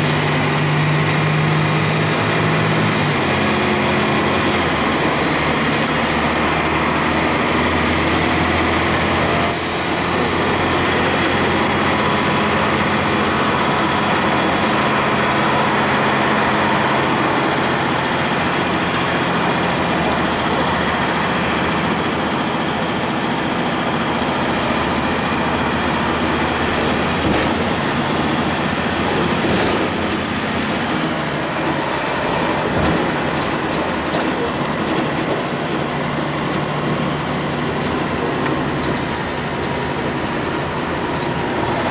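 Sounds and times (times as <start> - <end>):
diesel bus engine running: 0.0 - 41.9
road noise: 0.0 - 41.9.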